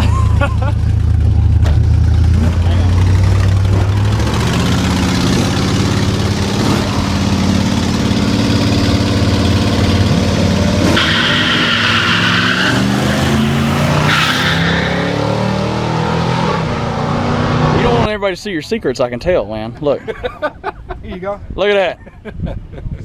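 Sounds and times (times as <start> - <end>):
racing car engines revving: 0.0 - 18.1
tyre squeal: 10.8 - 15.4.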